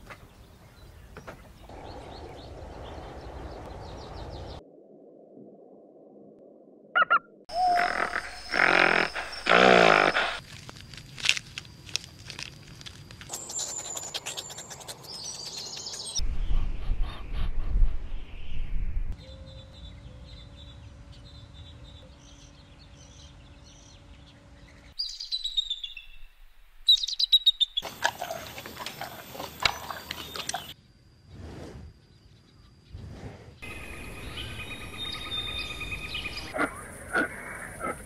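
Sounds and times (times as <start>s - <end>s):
birds chirping: 0.0s - 4.6s, 7.0s - 10.4s, 13.3s - 17.4s, 18.1s - 30.8s, 33.6s - 38.0s
low rumble: 1.7s - 6.9s
loud animal call: 7.0s - 10.4s
steady hum: 33.6s - 37.1s.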